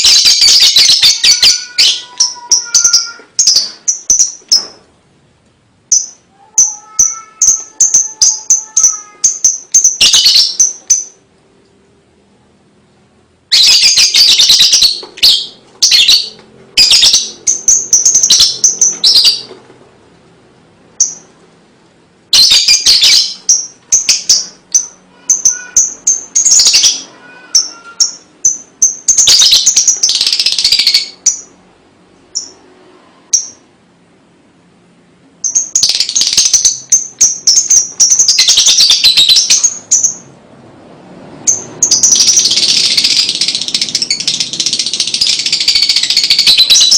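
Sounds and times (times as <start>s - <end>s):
bird chattering trills: 5.9s - 11.2s, 13.5s - 19.5s, 22.4s - 31.6s, 41.5s - 46.9s.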